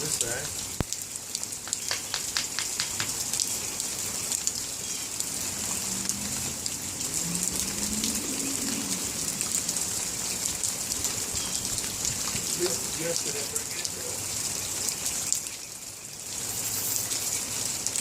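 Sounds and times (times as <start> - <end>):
light rain falling: 0.0 - 18.0.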